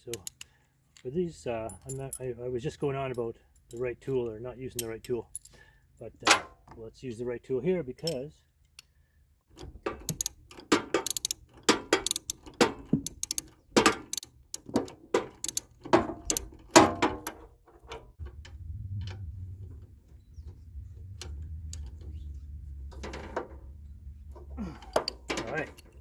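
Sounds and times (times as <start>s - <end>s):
wrench clicking on metal nut: 9.6s - 16.5s
low steady hum: 17.2s - 26.0s.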